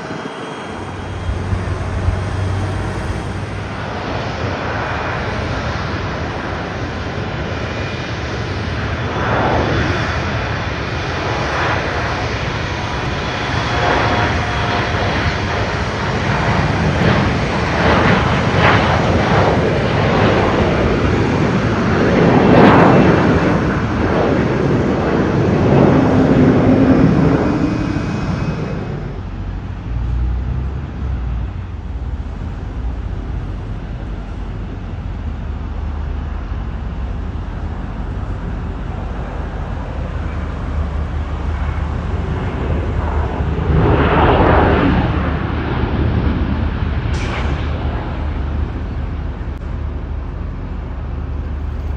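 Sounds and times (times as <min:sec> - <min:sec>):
broad noise swell: 0:00.0 - 0:07.1, 0:24.7 - 0:51.9
airliner engines: 0:00.0 - 0:51.9.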